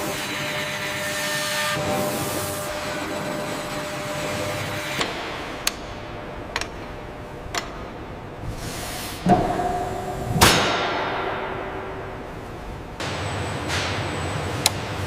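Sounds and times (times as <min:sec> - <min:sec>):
loud metallic clanks ringing: 0:09.2 - 0:15.0.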